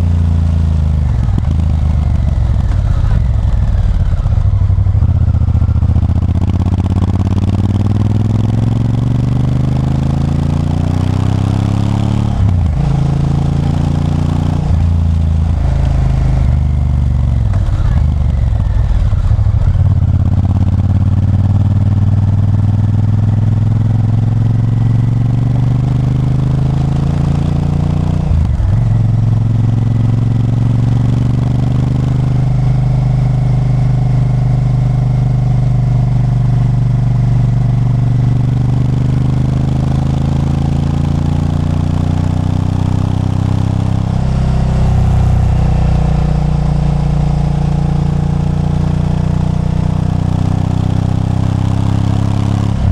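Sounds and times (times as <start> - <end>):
motorcycle engine accelerating: 0.0 - 52.9
gear change: 42.8 - 47.8.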